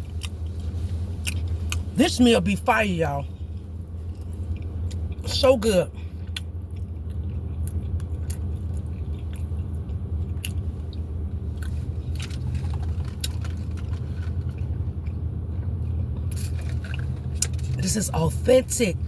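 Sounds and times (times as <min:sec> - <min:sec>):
person chewing food: 0:00.0 - 0:01.9, 0:03.3 - 0:05.4, 0:06.2 - 0:17.7
steady low hum: 0:00.0 - 0:19.0.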